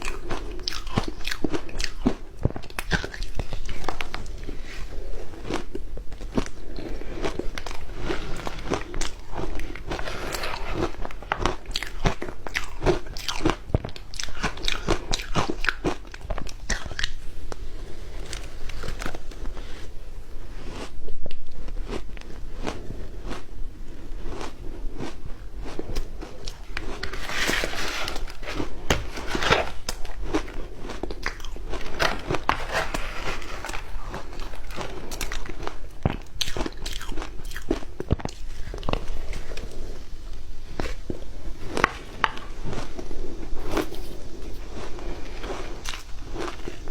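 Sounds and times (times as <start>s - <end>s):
ice being chewed: 0.0s - 46.9s.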